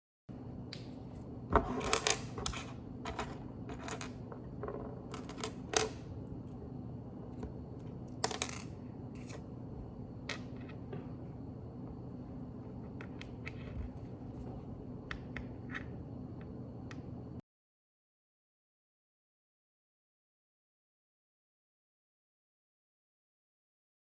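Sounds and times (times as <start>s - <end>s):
steady low hum: 0.3s - 17.4s.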